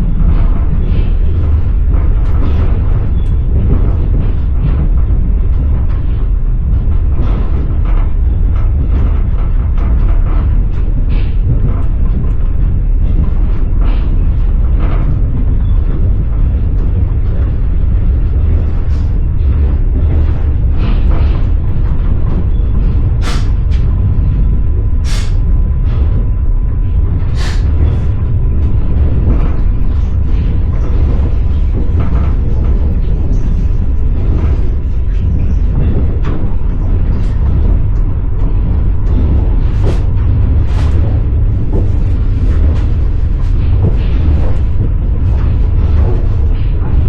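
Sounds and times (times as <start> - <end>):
train carriage rumble: 0.0 - 47.0.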